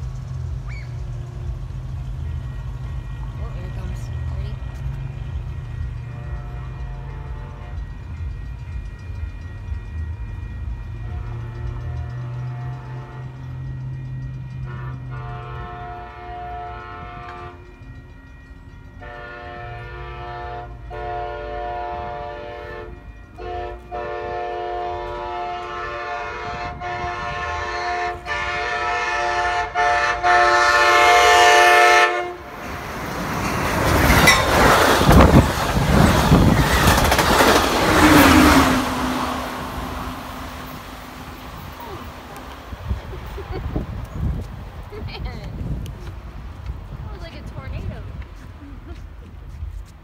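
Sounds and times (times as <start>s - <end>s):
train passing rumble: 0.0s - 50.0s
train horn blasts: 2.6s - 8.6s, 9.3s - 17.9s, 18.9s - 32.7s.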